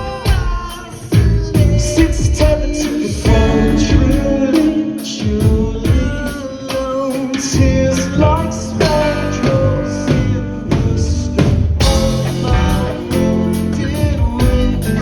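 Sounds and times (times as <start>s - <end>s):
person singing: 0.0s - 15.0s
rock music: 0.0s - 15.0s.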